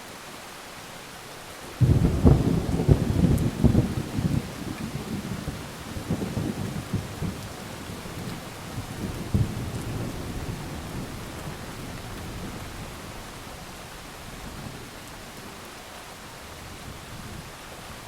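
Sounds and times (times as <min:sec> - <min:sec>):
heavy rain: 0:00.0 - 0:18.0
thunder crackles: 0:01.8 - 0:15.5
thunder rumbling: 0:01.8 - 0:15.6.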